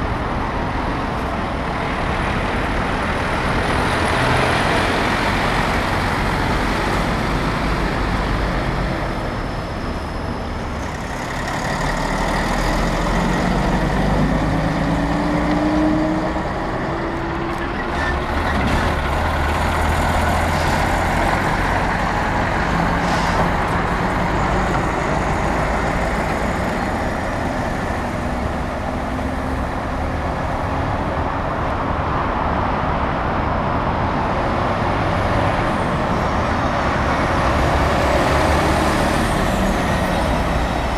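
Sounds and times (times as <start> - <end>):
diesel trucks driving past: 0.0 - 40.9
truck engine revving: 11.3 - 29.3.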